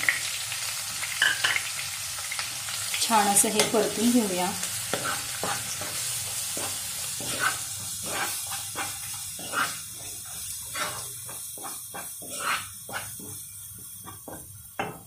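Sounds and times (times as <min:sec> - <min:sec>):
coconut sizzling in oil: 0:00.0 - 0:15.0
spatula scraping a pan: 0:04.8 - 0:15.0.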